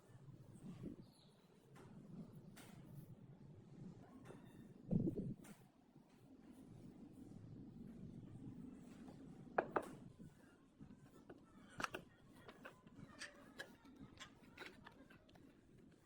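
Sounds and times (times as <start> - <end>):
small tools clicking and knocking: 11.1 - 16.0.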